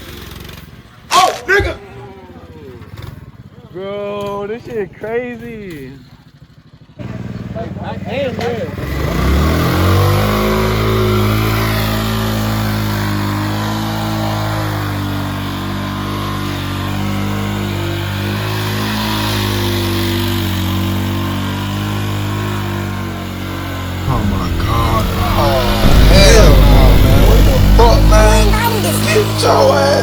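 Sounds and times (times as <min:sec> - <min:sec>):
small engine running steadily: 0:00.0 - 0:01.1, 0:02.0 - 0:24.0.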